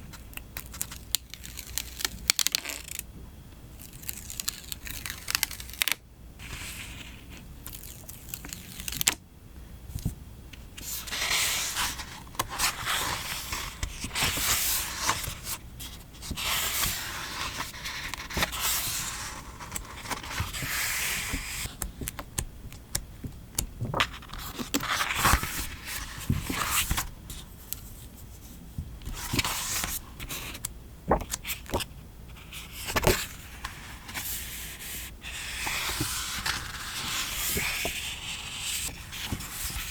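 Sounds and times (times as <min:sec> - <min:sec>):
paper rustling and sticker peeling: 0:23.9 - 0:27.4.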